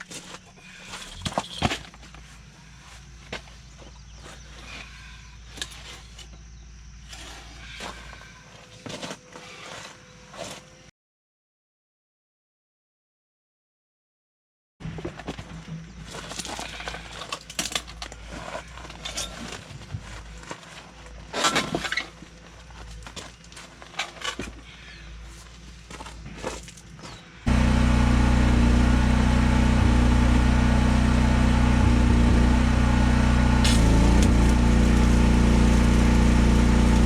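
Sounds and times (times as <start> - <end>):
engine running: 27.4 - 37.0.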